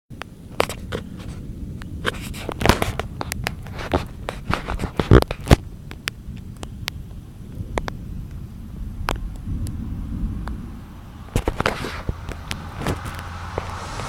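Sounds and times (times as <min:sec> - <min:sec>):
sharp taps and crackles: 0:00.1 - 0:08.4
low thunder rumble: 0:00.3 - 0:14.0.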